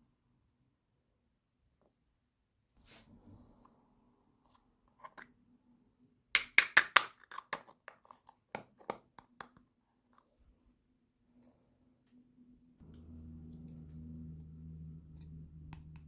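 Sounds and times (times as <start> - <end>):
faint steady hum: 11.4 - 16.0.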